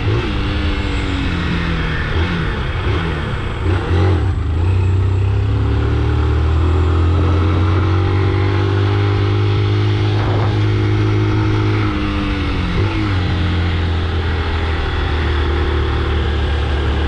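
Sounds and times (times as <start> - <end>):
motorcycle engine running: 0.0 - 17.0
wind noise: 7.2 - 15.5.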